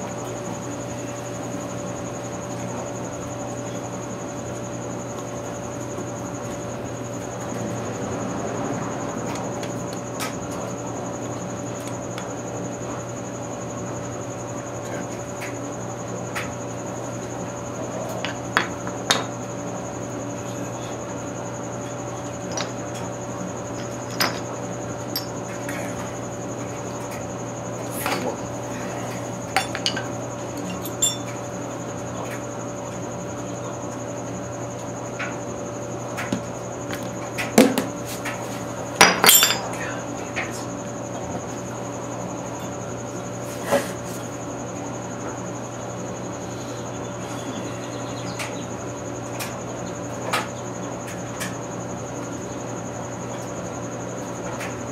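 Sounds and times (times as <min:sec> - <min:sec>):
steady background hum: 0:00.0 - 0:54.9
metal parts clinking: 0:29.6 - 0:31.3, 0:39.1 - 0:39.8.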